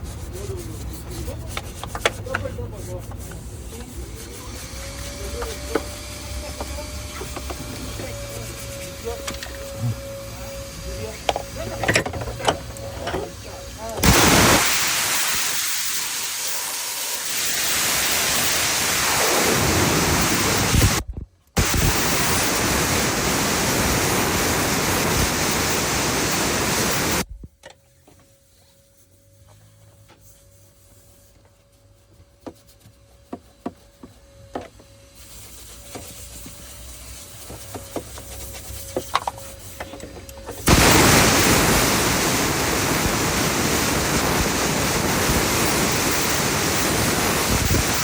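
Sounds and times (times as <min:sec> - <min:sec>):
loud rushing hiss: 0:14.0 - 0:21.0, 0:21.6 - 0:27.2, 0:40.6 - 0:48.0.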